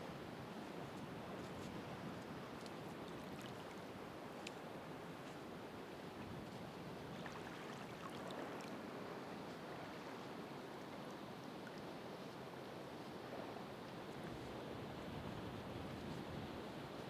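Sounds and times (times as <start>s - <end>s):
ocean waves washing on shore: 0.3s - 17.0s
faint small ticks: 2.6s - 4.6s.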